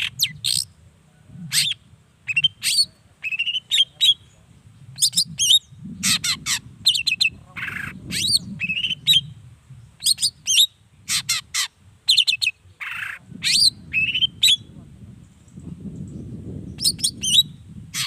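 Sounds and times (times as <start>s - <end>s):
bird singing whistled notes: 1.6s - 5.8s, 8.1s - 9.4s, 10.0s - 10.8s, 13.4s - 14.7s, 15.4s - 17.7s.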